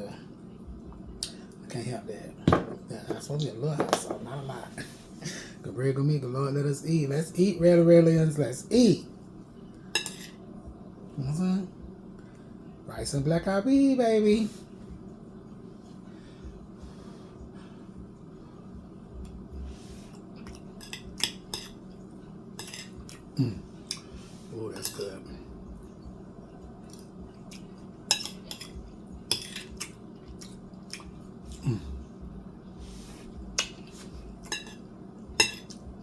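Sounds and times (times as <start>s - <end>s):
steady low hum: 0.0s - 36.0s
fork scraping on a plate: 22.6s - 23.0s, 28.1s - 30.0s.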